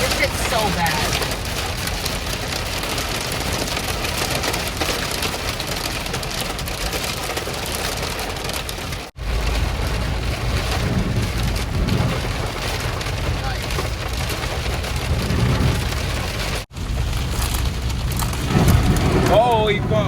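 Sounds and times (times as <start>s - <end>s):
heavy rain pelting a car: 0.0s - 20.0s
deep rumble: 8.6s - 20.0s.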